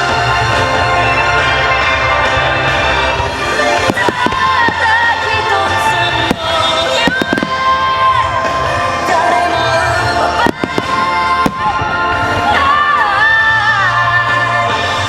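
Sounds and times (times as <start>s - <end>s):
loud music with singing: 0.0s - 15.0s
firework bangs: 3.2s - 14.4s.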